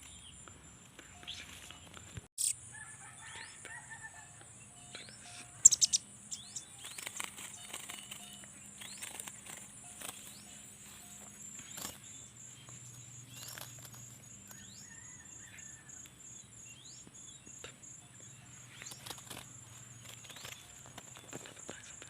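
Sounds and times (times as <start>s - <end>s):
small birds chirping: 0.0s - 2.7s, 3.3s - 22.0s
high-pitched insect trill: 2.4s - 22.0s.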